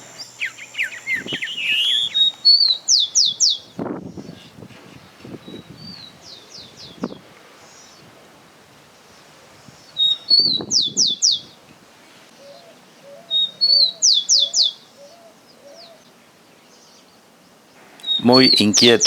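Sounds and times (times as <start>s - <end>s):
songbird singing whistles: 0.0s - 3.8s, 9.9s - 11.6s, 12.4s - 16.0s, 18.0s - 19.0s
soft low bird call: 0.0s - 4.6s.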